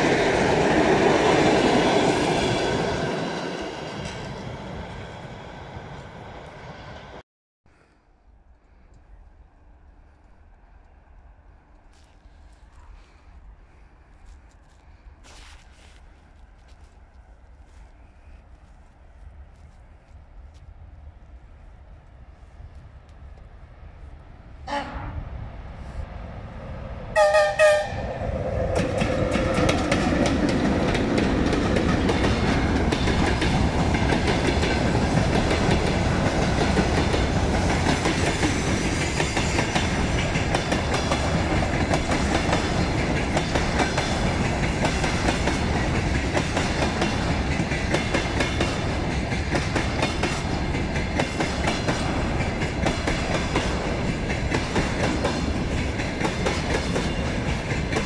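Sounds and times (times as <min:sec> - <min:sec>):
locomotive horn blast: 0:24.7 - 0:25.2, 0:27.2 - 0:28.2
wheels clacking over rail joints: 0:28.6 - 0:58.0.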